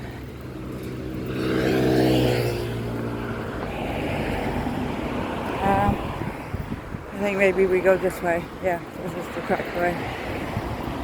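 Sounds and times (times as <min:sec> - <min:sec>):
motor vehicle passing by: 0:00.0 - 0:08.5.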